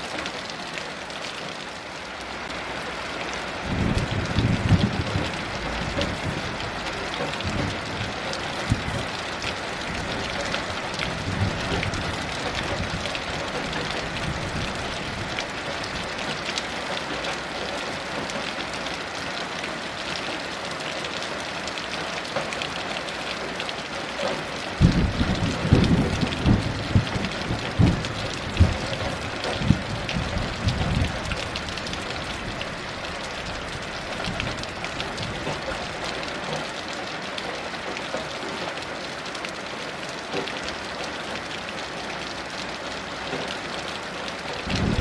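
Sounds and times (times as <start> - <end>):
heavy rain falling: 0.0 - 45.0
thunder rumbling: 3.7 - 9.1, 24.8 - 35.6, 44.6 - 45.0.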